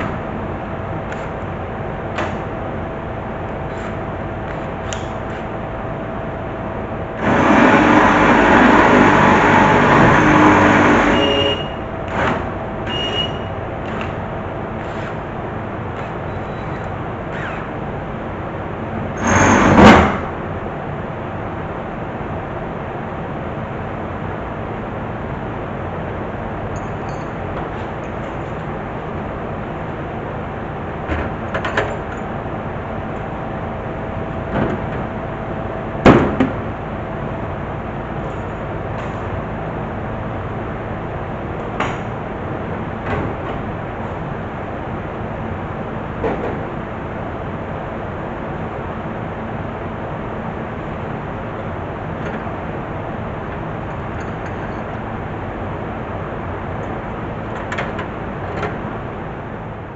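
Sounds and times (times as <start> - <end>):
steady background noise: 0.0 - 59.9.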